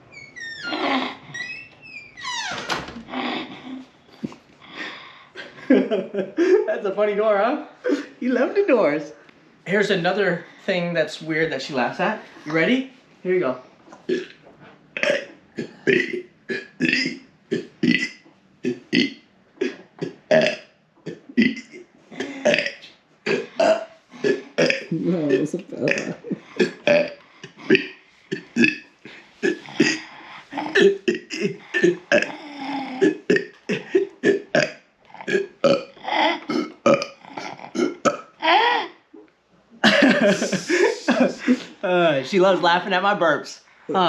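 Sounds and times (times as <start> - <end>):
person making burp-like noises: 14.0 - 14.4, 15.0 - 39.0.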